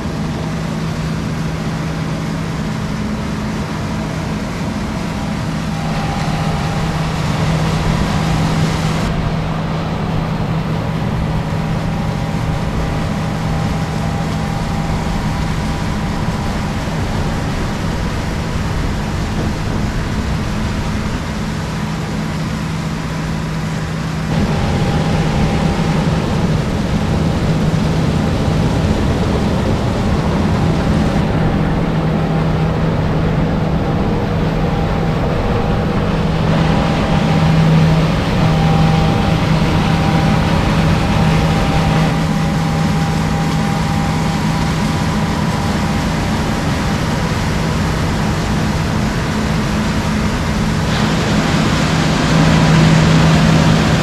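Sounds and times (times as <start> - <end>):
diesel machinery humming: 0.0 - 54.0.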